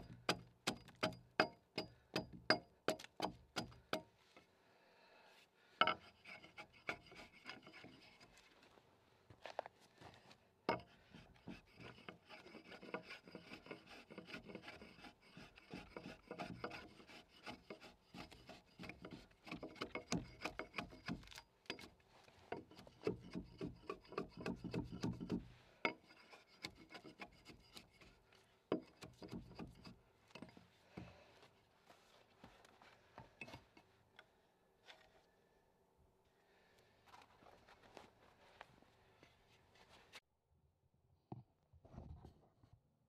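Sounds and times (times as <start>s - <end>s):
hand tool scraping wood: 5.8s - 8.5s, 10.7s - 32.1s.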